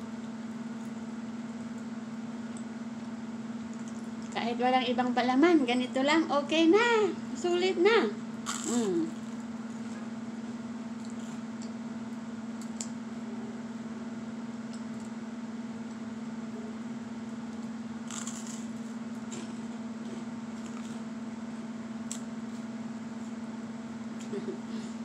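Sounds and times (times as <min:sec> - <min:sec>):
steady low hum: 0:00.0 - 0:25.0
crunching toast: 0:08.4 - 0:09.4, 0:18.0 - 0:19.5.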